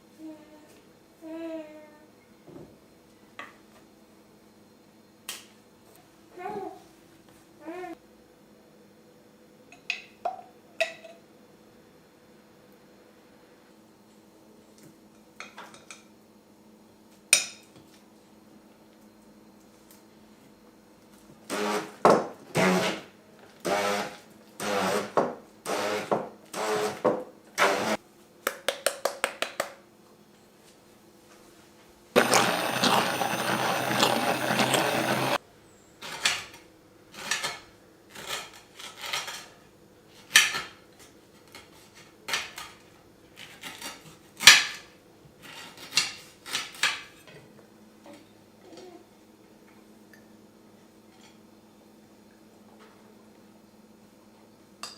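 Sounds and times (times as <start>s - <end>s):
small blender whirring: 21.5s - 22.0s, 22.6s - 27.0s, 32.1s - 35.4s.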